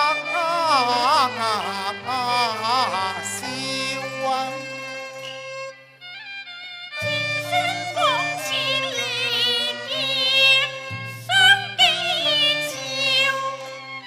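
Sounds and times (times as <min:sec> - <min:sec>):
bowed string melody with vibrato: 0:00.0 - 0:14.0
instrumental accompaniment: 0:00.0 - 0:14.0.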